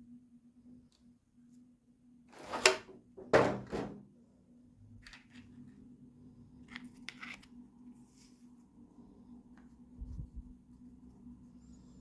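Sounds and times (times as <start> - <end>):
faint steady hum: 0.0 - 3.3, 4.0 - 12.0
rustles and clicks of packaging: 6.5 - 8.6.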